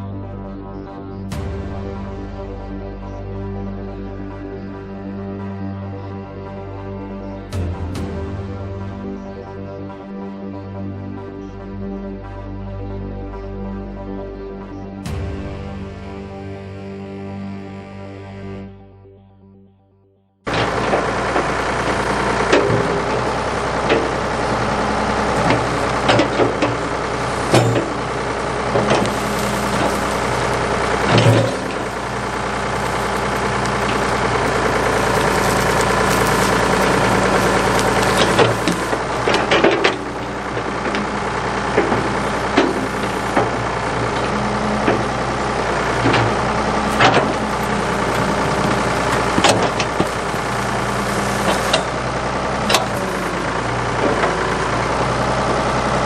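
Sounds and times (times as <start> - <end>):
knocks and clanks: 20.5 - 52.0, 52.7 - 54.6
diesel engine running: 20.5 - 56.0.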